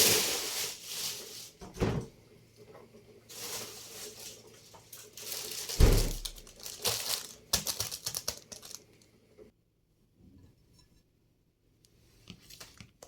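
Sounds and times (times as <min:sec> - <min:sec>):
packaging crinkling: 0:00.0 - 0:01.6, 0:03.3 - 0:09.1.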